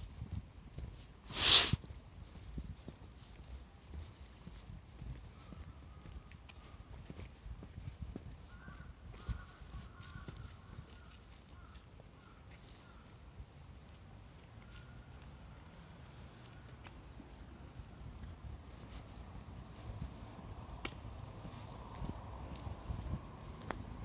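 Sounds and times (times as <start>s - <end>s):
insects chorus: 0.0s - 24.0s
lower insect calls: 0.0s - 24.0s.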